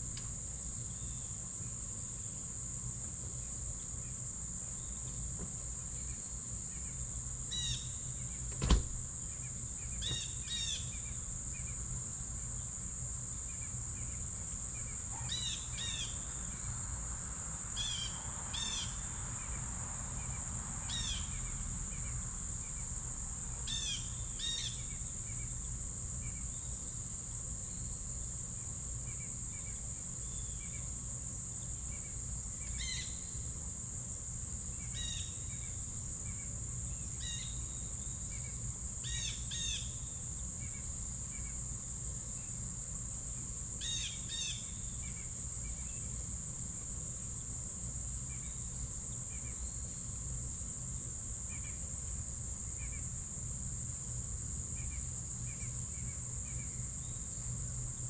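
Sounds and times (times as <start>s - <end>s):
high-pitched insect chorus: 0.0s - 58.0s
bird calls: 6.0s - 11.8s.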